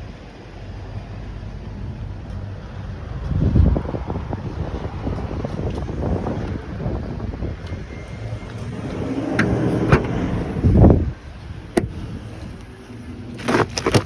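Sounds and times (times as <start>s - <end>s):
car rumbling low: 0.0s - 14.0s
heavy thump: 9.3s - 11.0s, 11.7s - 12.1s.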